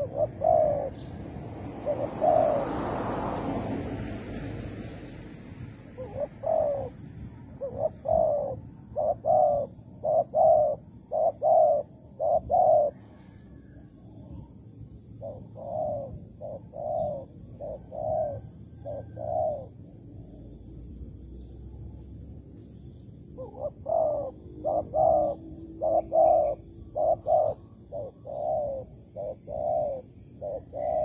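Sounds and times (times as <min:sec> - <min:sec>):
dove cooing: 0:00.0 - 0:03.0, 0:05.8 - 0:14.6, 0:15.2 - 0:20.4, 0:23.4 - 0:31.0.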